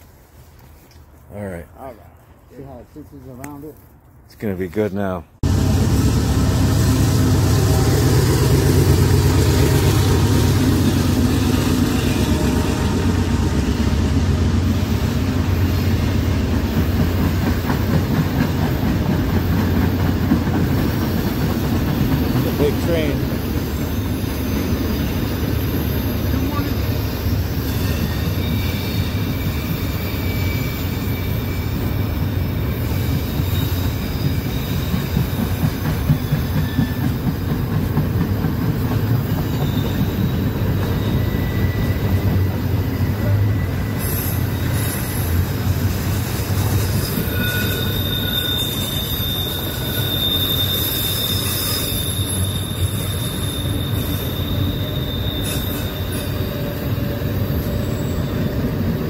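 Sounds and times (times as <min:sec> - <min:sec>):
train rumbling on rails: 0:05.4 - 0:59.0
high-pitched wheel squeals: 0:23.7 - 0:35.4, 0:39.4 - 0:45.4, 0:47.0 - 0:58.8.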